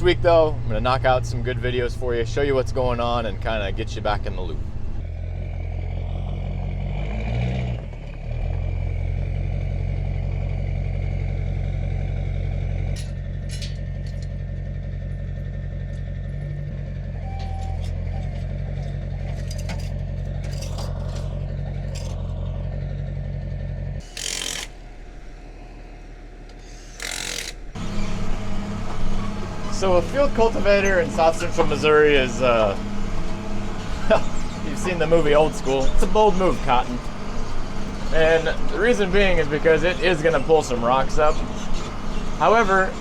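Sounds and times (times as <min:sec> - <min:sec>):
tractor engine running: 0:00.0 - 0:43.0.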